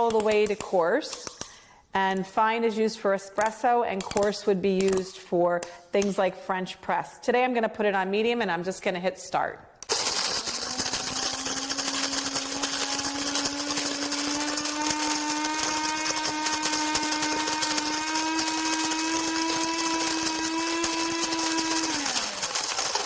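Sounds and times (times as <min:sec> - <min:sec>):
coffee beans crackling in grinder: 0:09.8 - 0:23.0
grinder motor humming: 0:09.9 - 0:23.0.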